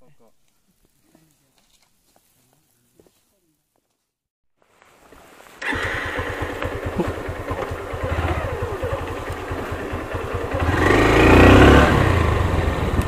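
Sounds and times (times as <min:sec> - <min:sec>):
motorcycle engine running: 0:05.6 - 0:13.0.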